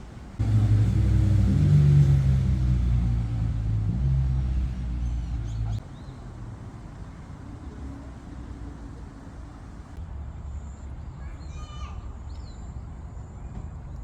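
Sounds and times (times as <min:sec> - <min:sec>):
low vehicle rumble: 0:00.0 - 0:05.9.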